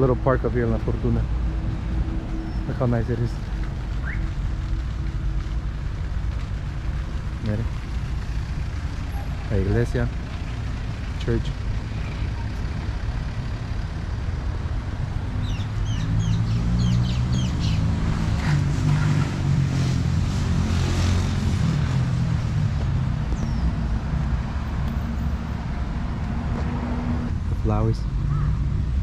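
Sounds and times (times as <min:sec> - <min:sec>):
vehicle engine passing: 0:06.5 - 0:29.0
high bird chirps: 0:15.4 - 0:17.9.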